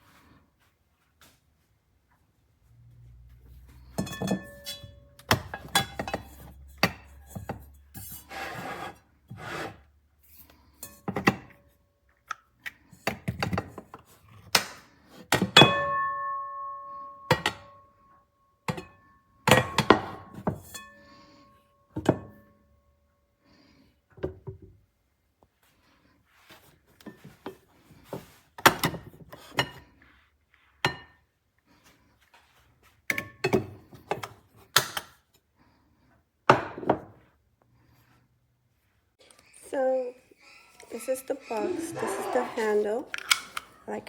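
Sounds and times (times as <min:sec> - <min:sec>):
pots and pans knocking and clinking: 0:04.0 - 0:07.7, 0:15.3 - 0:17.8, 0:18.7 - 0:21.0, 0:22.0 - 0:22.5.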